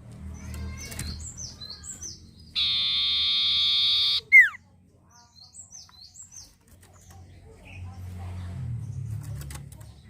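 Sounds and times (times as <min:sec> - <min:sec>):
bird singing chirps and trill: 0:00.1 - 0:07.8.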